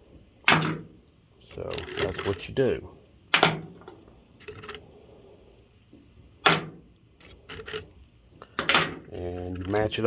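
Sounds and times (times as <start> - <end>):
metal bolts clacking on surface: 1.6 - 2.5, 3.3 - 4.8, 6.4 - 10.0.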